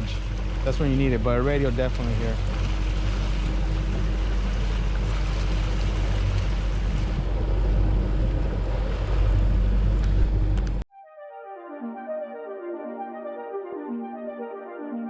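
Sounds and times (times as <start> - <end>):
motorboat engine running: 0.0 - 10.8
water noise: 0.0 - 10.9
wind: 0.0 - 10.9
music with horn melody: 10.9 - 15.0.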